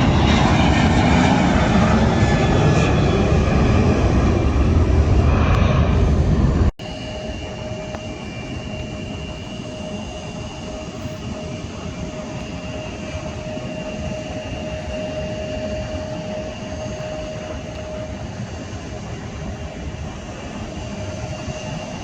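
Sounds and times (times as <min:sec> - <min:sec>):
distant jet engine rumble and whine: 0:00.0 - 0:22.0
loud jet airliner noise: 0:00.0 - 0:22.0.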